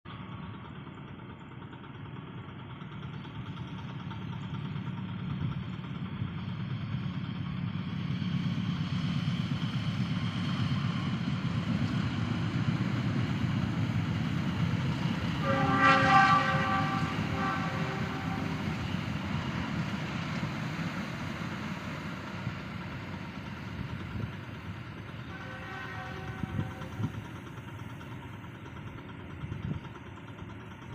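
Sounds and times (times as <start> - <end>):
train rumbling past: 0.1 - 30.9
train horn: 15.2 - 19.0, 25.2 - 27.1.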